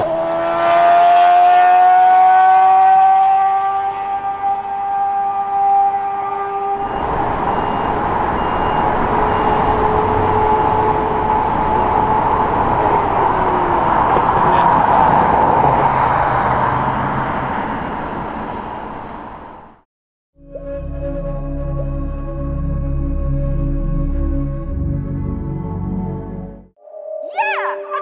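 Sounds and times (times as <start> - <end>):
race car engine at high revs: 0.0 - 4.4, 6.8 - 19.8.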